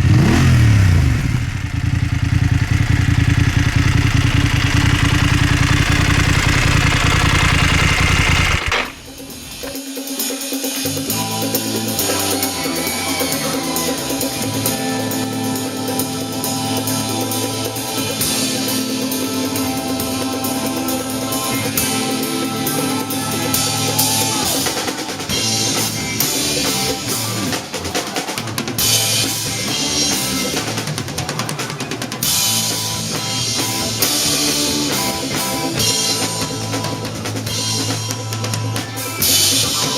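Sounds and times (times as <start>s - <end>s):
motorcycle engine running: 0.0s - 9.8s
music with drum kit: 8.3s - 39.9s.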